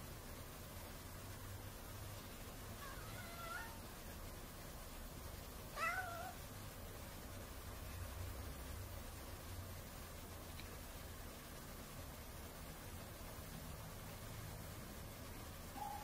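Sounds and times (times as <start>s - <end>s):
cat meowing: 2.8s - 3.8s, 5.7s - 6.4s.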